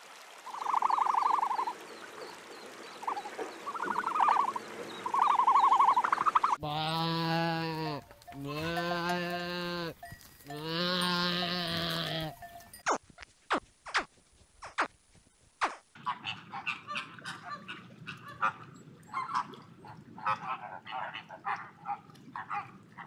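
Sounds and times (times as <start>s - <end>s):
goat kid bleating: 6.6s - 12.4s
animal rattling trills: 9.9s - 12.9s.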